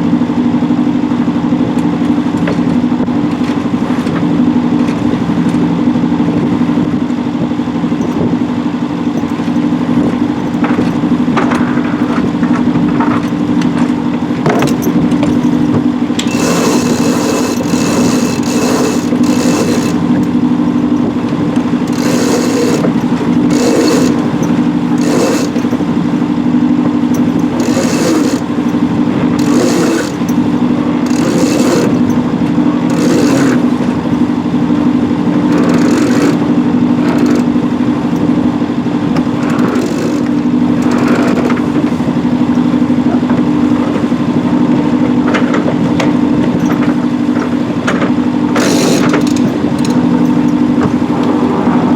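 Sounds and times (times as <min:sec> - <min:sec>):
boat engine humming: 0:00.0 - 0:51.9
rushes of noise: 0:48.6 - 0:51.9.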